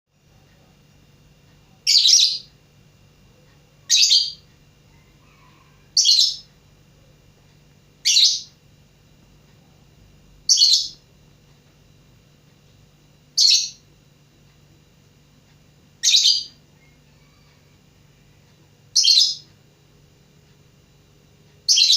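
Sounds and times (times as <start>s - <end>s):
lovebird shrill calls: 16.0s - 16.6s.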